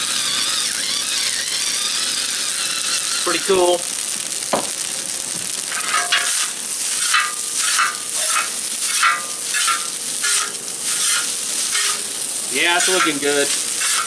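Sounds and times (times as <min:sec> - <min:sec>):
noodles sizzling in hot oil: 0:00.0 - 0:14.0
stirring and scraping pan: 0:05.4 - 0:14.0.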